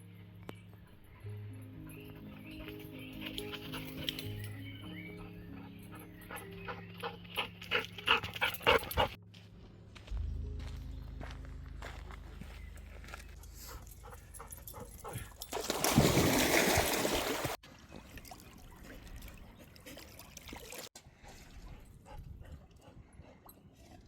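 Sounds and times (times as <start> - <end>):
dog splashing in water: 14.9 - 20.9.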